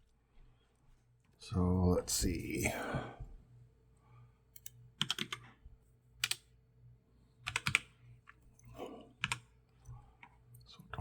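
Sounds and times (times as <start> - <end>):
typing on a computer keyboard: 4.6 - 5.5, 6.2 - 6.5, 7.4 - 7.9, 9.2 - 9.5.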